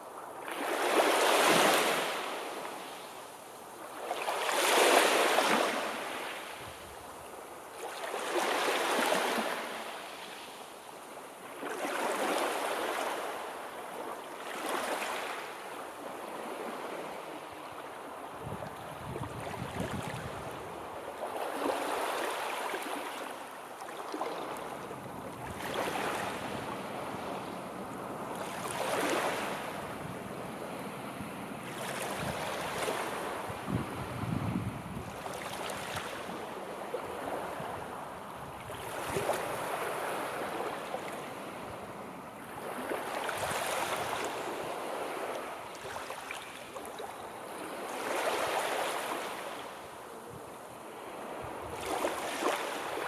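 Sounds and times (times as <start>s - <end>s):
sea waves breaking: 3.8s - 6.6s, 19.2s - 53.0s.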